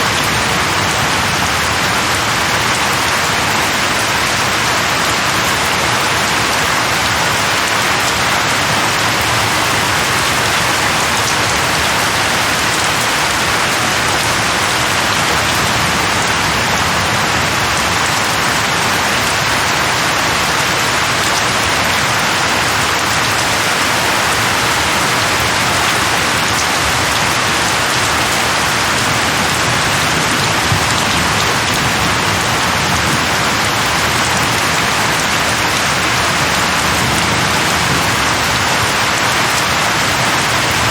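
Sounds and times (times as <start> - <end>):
heavy rain on leaves: 0.0 - 40.9.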